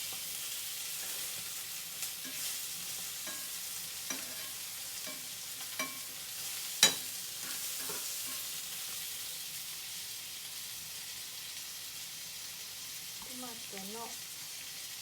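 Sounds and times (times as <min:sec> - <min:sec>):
eggplant sizzling in oil: 0:00.0 - 0:15.0.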